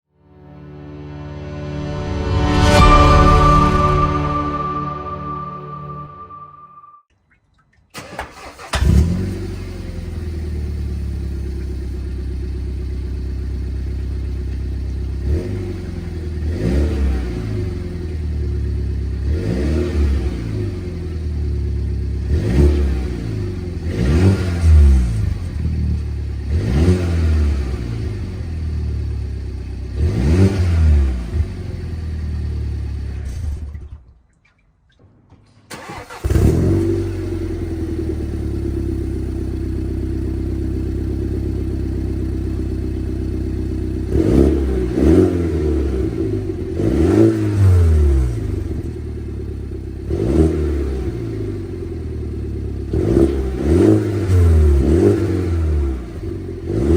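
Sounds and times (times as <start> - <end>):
engine starting: 7.9 - 9.5, 35.0 - 37.4
car engine idling and revving: 8.4 - 34.0, 35.7 - 56.9.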